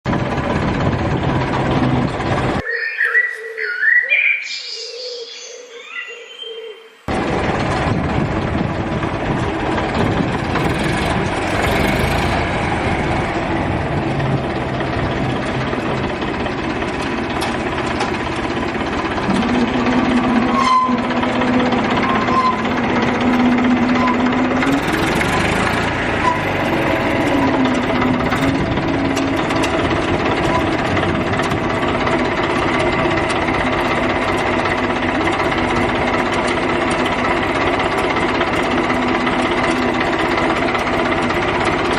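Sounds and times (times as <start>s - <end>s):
small motor rattling: 7.1s - 41.9s
held higher tone: 19.2s - 24.8s.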